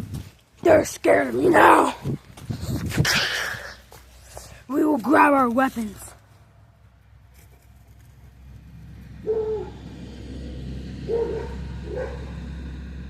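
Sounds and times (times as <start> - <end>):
car approaching: 5.8 - 13.0
dog barking: 9.2 - 9.8, 11.1 - 12.4.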